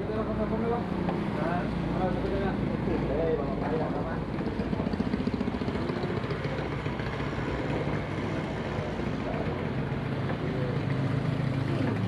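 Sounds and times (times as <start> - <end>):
outboard motor running: 3.8 - 12.0.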